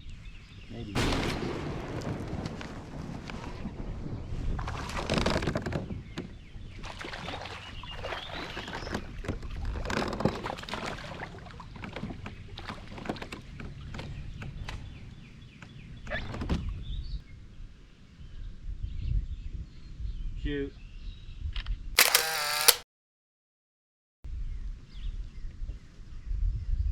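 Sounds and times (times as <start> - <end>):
water sloshing: 6.7 - 14.9.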